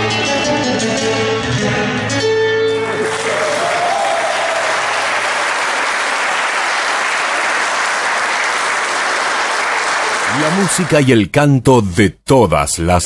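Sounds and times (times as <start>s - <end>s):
audience applauding: 2.8s - 11.2s.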